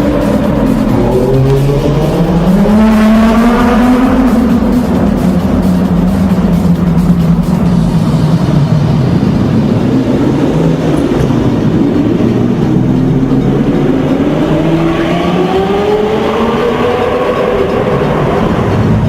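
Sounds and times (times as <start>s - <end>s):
sports car engine accelerating: 0.0s - 19.0s.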